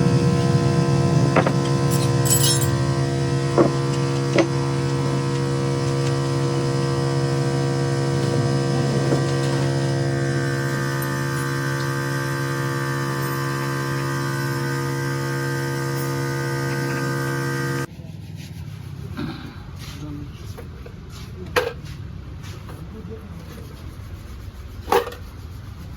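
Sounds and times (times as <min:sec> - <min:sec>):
steady machine hum: 0:00.0 - 0:17.9.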